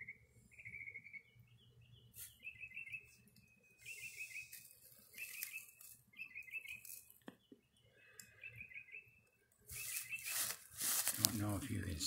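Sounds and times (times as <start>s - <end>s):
songbird warbling: 0.0s - 3.1s, 3.8s - 10.5s
rustling noise: 9.7s - 11.6s.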